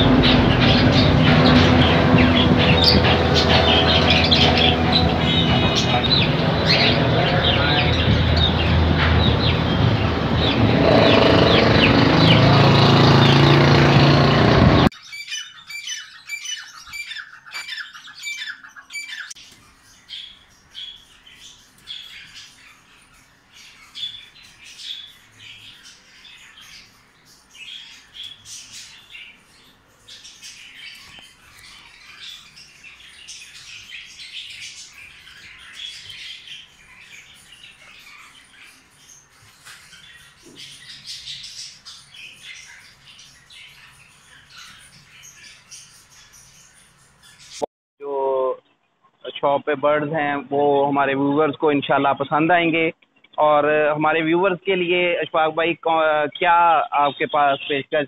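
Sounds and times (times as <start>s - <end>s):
loud dense background noise: 0.0s - 14.9s
caged birds chirping and squawking: 0.0s - 58.0s.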